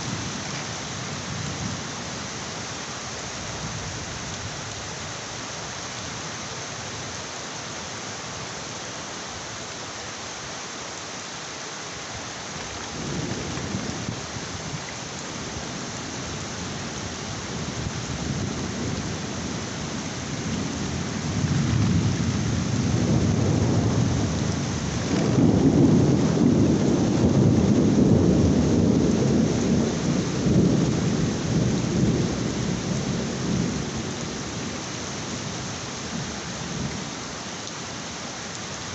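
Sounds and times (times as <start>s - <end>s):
heavy rain falling: 0.0s - 38.9s
rolling thunder: 20.5s - 34.8s.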